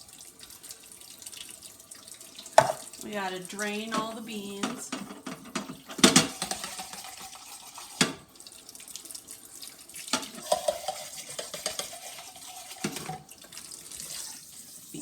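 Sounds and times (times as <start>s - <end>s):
water running in a sink: 0.0s - 15.0s
can knocking against sink: 2.6s - 2.9s, 4.0s - 7.2s.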